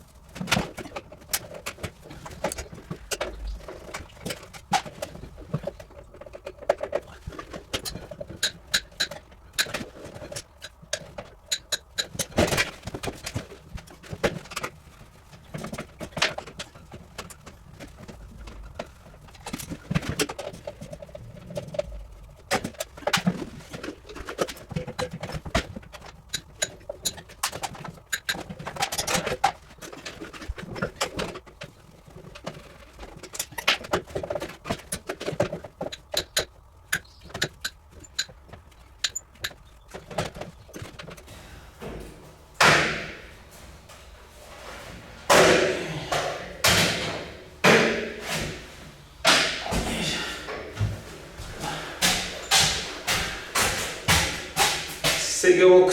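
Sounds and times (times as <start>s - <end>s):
hand tool clicks and knocks: 3.9s - 13.4s, 52.0s - 55.2s.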